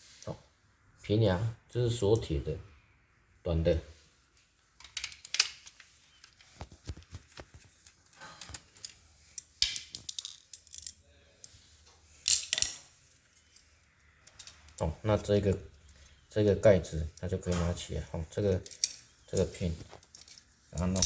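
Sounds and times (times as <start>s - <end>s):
small screws clinking: 4.8s - 6.6s, 7.5s - 16.2s, 18.5s - 21.0s.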